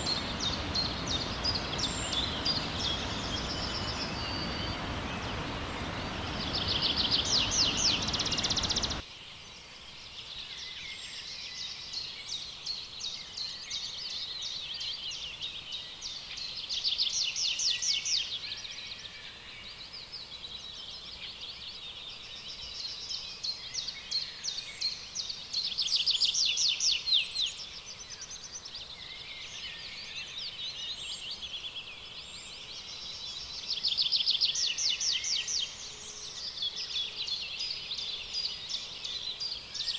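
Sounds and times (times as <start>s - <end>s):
birds chirping: 0.0s - 9.0s
broad hiss: 0.0s - 9.0s.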